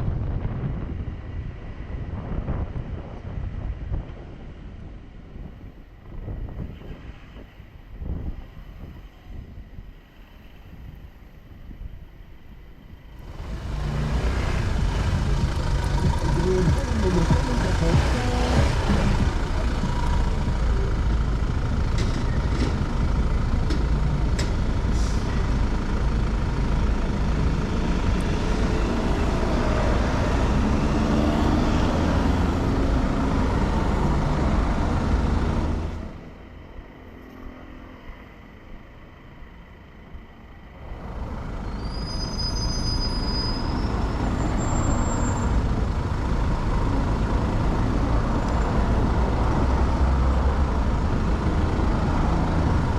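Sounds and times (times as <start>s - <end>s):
wind rush on camera: 0.0s - 16.3s
motorcycle engine riding: 13.2s - 24.5s
short high-pitched squeals: 41.7s - 45.6s.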